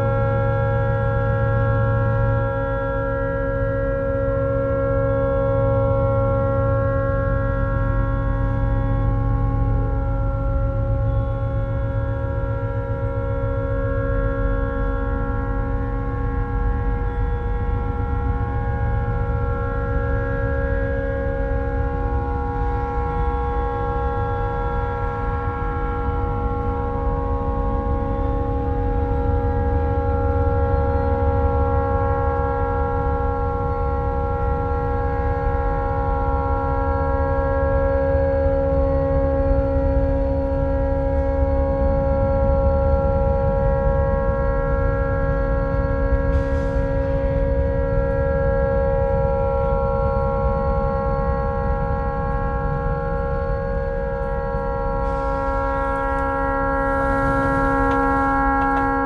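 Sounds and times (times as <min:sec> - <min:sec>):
boat horn steady tone: 0:00.0 - 0:59.0
low rumble: 0:54.3 - 0:59.0.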